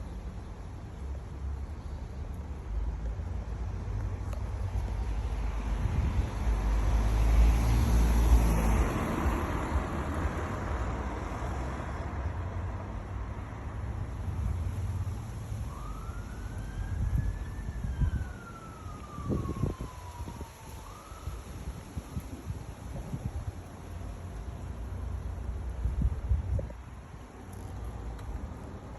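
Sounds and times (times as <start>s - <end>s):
roadside traffic: 0.0s - 28.9s
distant siren wailing: 15.5s - 22.5s.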